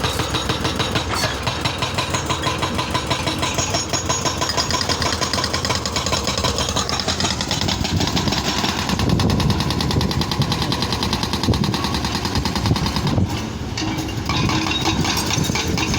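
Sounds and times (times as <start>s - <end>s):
fast mechanical rattle: 0.0s - 13.5s
excavator diesel engine running: 0.0s - 15.9s.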